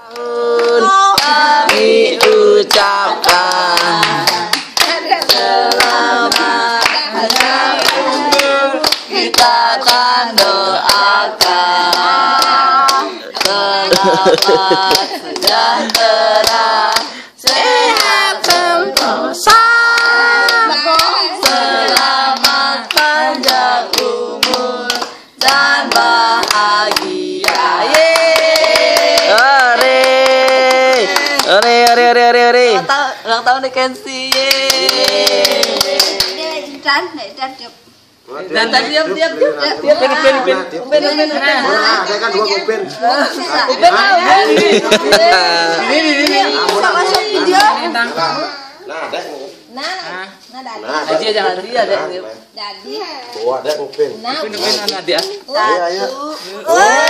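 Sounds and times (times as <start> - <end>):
people clapping along: 0.0 - 32.9, 33.6 - 36.8, 44.0 - 47.9, 54.6 - 55.4, 56.7 - 57.0
group singing a celebration song: 0.0 - 57.0.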